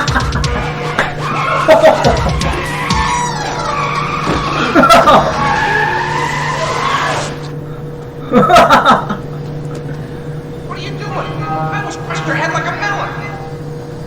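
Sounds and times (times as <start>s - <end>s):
car tyres squealing: 0.0s - 7.6s.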